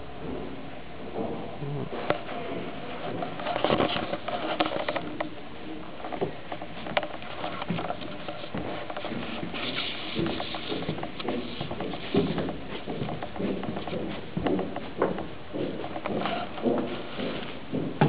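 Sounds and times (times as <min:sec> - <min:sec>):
footsteps and scuffs on deck: 0:00.0 - 0:18.0.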